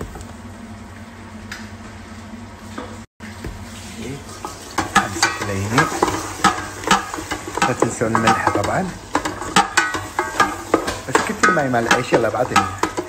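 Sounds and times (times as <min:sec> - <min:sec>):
vegetables sizzling in a pot: 0:03.2 - 0:13.0.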